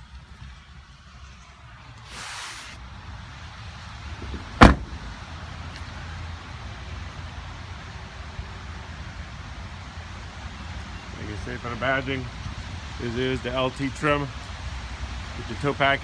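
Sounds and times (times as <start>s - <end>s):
short rush of noise: 2.1s - 2.8s
truck door slamming: 2.1s - 2.8s, 4.2s - 5.3s.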